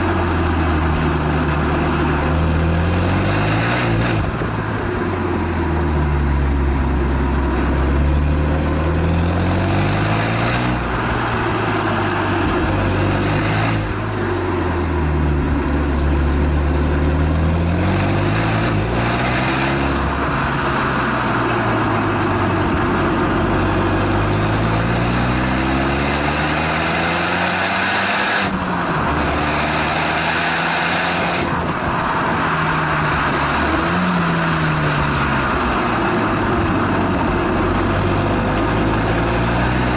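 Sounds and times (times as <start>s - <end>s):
car engine revving and shifting: 0.0s - 39.9s
road and wind noise: 0.0s - 39.9s.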